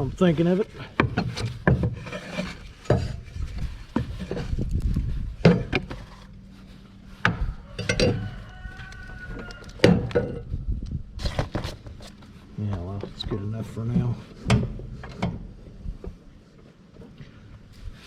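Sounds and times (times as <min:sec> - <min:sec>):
knocks and scrapes on metal deck: 0:00.8 - 0:10.6, 0:11.2 - 0:12.3, 0:12.9 - 0:16.2.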